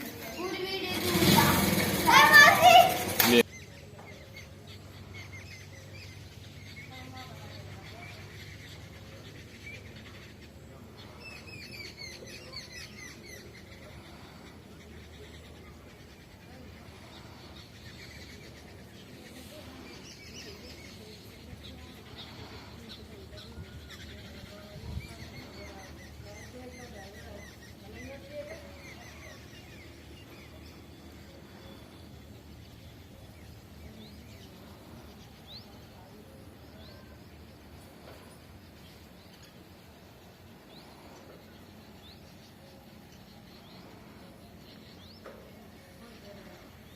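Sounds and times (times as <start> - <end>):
faint outdoor rumble: 0.0 - 46.9
small birds chirping: 0.0 - 46.9.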